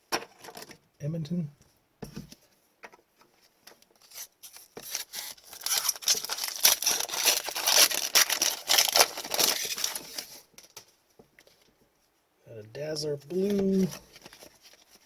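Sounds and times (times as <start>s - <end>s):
foil wrapper tearing and crinkling: 4.0s - 10.4s.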